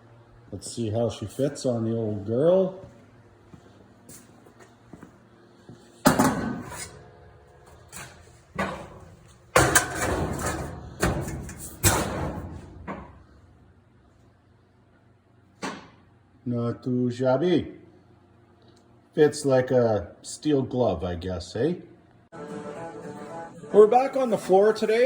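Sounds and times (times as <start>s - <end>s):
sheet steel clanging: 7.9s - 13.1s.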